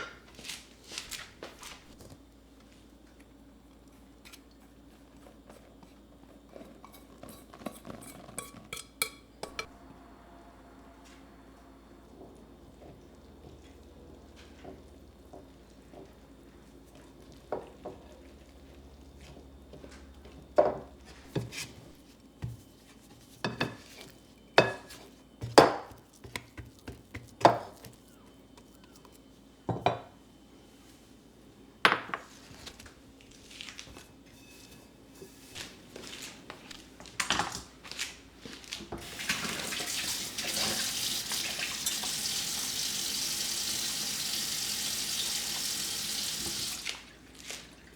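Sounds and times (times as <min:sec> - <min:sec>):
dishes and utensils clattering: 0:06.8 - 0:09.7
tap water running: 0:39.0 - 0:47.2.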